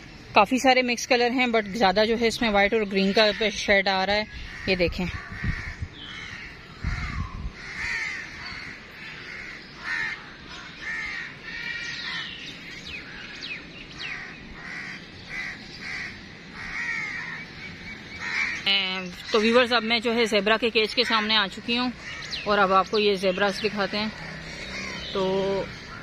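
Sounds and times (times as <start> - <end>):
birds making harsh calls: 1.2 - 26.0.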